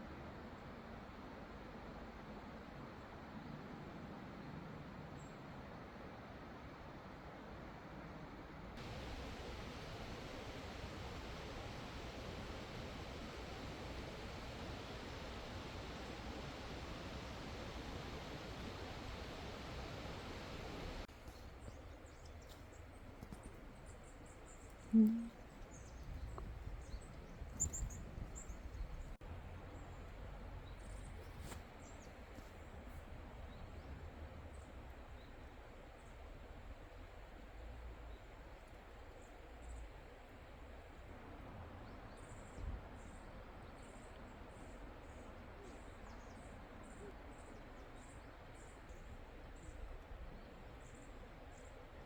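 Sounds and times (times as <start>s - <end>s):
steady background hiss: 8.8s - 52.0s
high thin bird calls: 24.8s - 26.0s.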